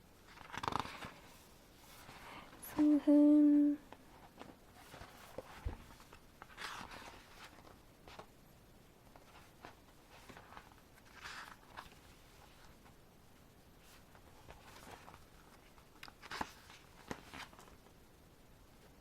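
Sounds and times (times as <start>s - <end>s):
page-turn swishes: 0.3s - 2.2s, 4.2s - 8.3s.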